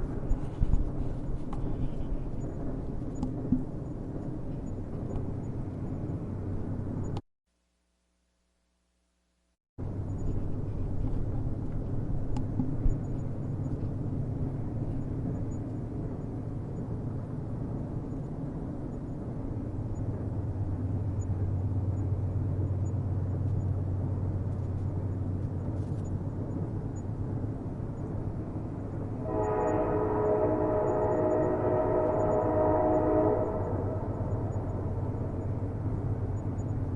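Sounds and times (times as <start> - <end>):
train rumbling on rails: 0.0 - 7.2, 9.8 - 36.9
train horn chord: 29.2 - 35.0.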